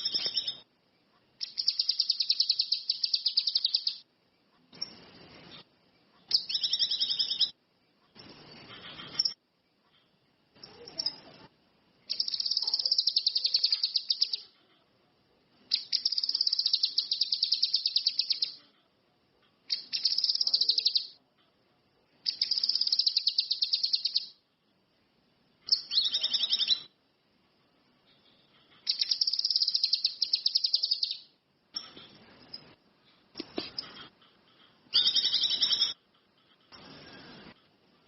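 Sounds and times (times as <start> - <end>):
songbird trilling: 0.0 - 0.6, 1.4 - 4.0, 6.3 - 7.6, 12.1 - 14.5, 15.7 - 18.6, 19.7 - 21.2, 22.3 - 24.4, 25.7 - 26.9, 28.9 - 32.0, 34.9 - 36.0.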